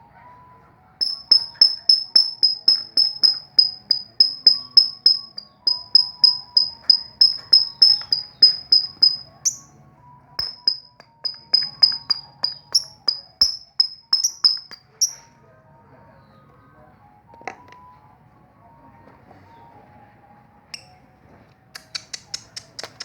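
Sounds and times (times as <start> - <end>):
lovebird chirping: 1.0 - 9.7.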